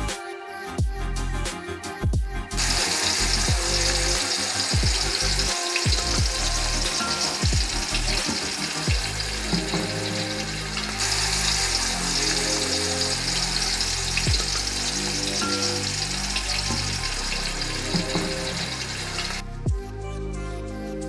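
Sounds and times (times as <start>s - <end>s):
background music: 0.0s - 21.0s
food sizzling in a pot: 2.6s - 19.4s.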